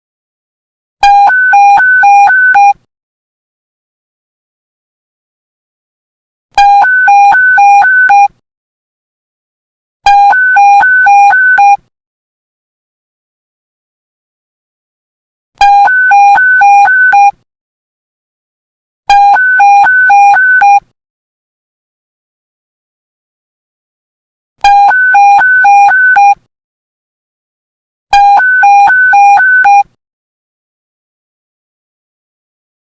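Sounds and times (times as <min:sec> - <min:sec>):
electronic two-tone alert beep: 0:10.1 - 0:11.8, 0:15.6 - 0:17.4, 0:19.1 - 0:20.8, 0:24.6 - 0:26.4, 0:28.1 - 0:29.9.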